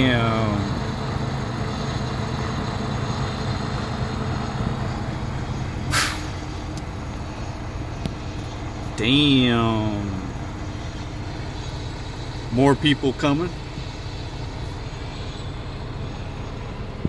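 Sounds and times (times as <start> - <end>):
vehicle engines idling: 0.0 - 17.0
short hiss: 5.8 - 6.6.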